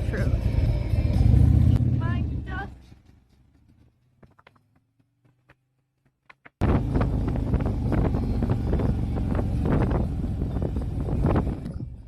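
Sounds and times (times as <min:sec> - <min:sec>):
wind buffeting on microphone: 0:06.6 - 0:12.0.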